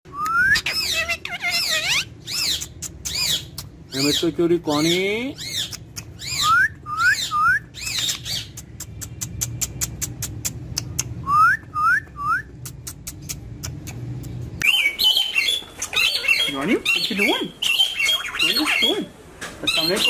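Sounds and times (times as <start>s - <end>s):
parrot squawking: 0.4s - 8.8s, 14.6s - 20.0s.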